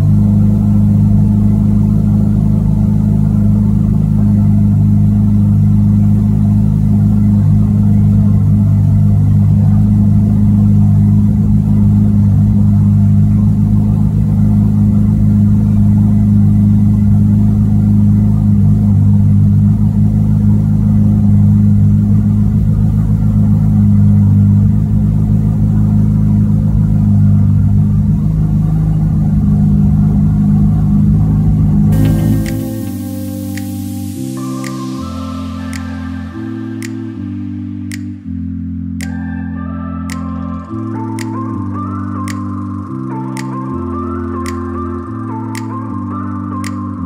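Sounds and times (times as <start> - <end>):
car engine idling: 0.0 - 34.5.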